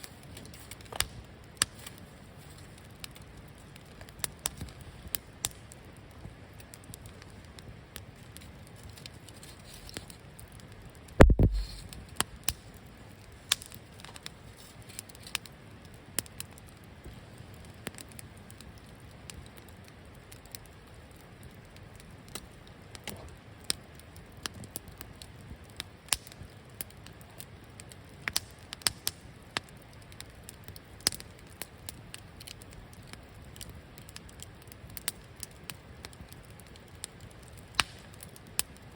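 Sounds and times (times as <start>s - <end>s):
campfire crackling and popping: 0.0s - 38.9s
heavy deep thump: 11.2s - 11.6s.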